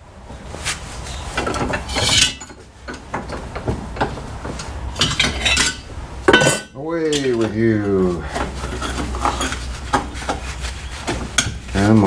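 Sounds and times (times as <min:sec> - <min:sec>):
metal knocks and clanks: 0:01.4 - 0:07.6.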